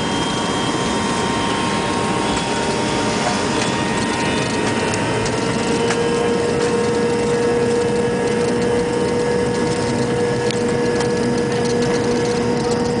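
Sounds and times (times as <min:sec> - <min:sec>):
jet engine rushing noise: 0:00.0 - 0:13.0
low pulsing tone: 0:00.0 - 0:13.0.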